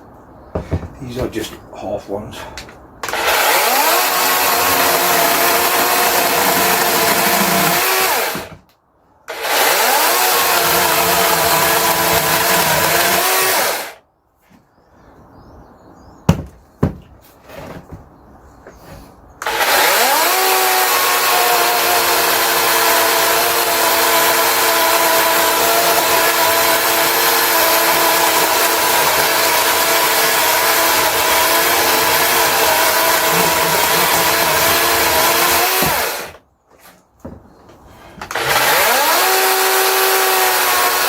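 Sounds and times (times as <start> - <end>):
electric chainsaw cutting log: 3.0 - 8.6, 9.3 - 14.0, 19.4 - 36.4, 38.2 - 41.0.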